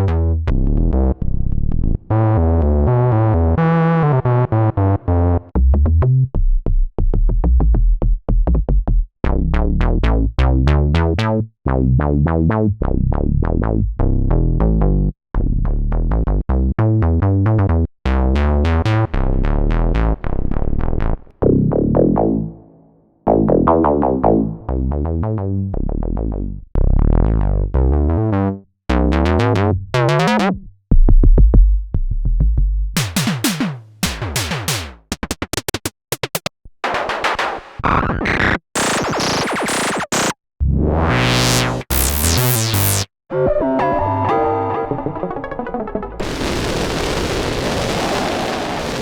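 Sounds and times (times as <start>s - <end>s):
synthesizer bass notes: 0.0s - 6.4s, 7.2s - 30.7s, 37.8s - 47.0s
synthesizer blips: 36.9s - 48.5s
noisy synthesizer sweeps: 39.7s - 48.5s.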